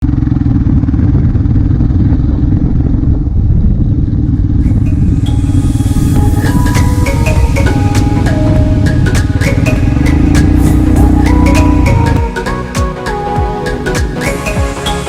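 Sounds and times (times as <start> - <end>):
motorcycle engine running: 0.0 - 14.8
music: 4.6 - 15.0.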